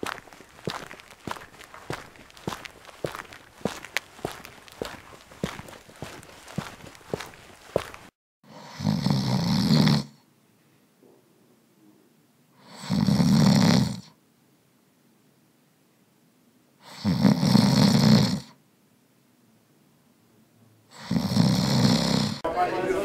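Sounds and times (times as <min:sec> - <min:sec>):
person snoring: 0:08.5 - 0:10.2, 0:12.6 - 0:14.1, 0:16.8 - 0:18.5, 0:20.9 - 0:22.4.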